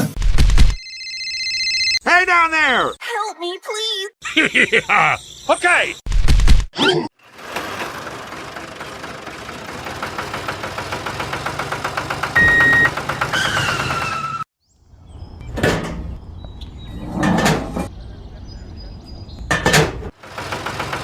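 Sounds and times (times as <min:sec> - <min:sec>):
small engine running: 0:07.2 - 0:14.4, 0:20.2 - 0:21.0
short beep: 0:12.4 - 0:12.9.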